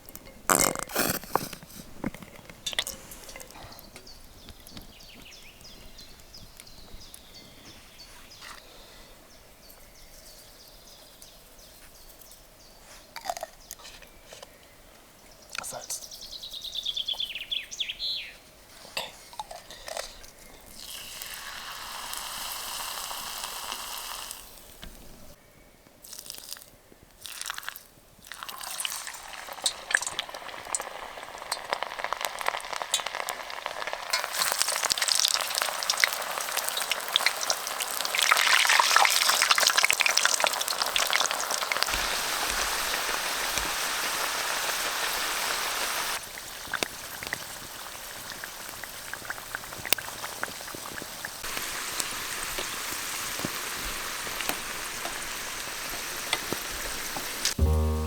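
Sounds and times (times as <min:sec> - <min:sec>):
food sizzling in hot oil: 0:20.8 - 0:24.8, 0:27.2 - 0:58.0.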